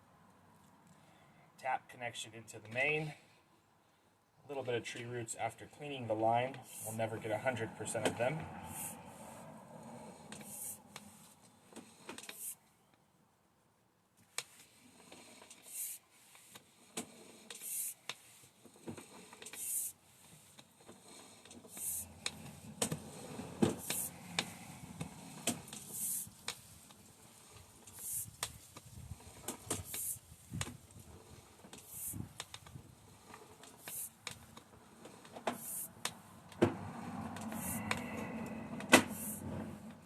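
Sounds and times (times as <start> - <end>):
cable handling clicks and scrapes: 10.0 - 12.6, 14.2 - 40.0.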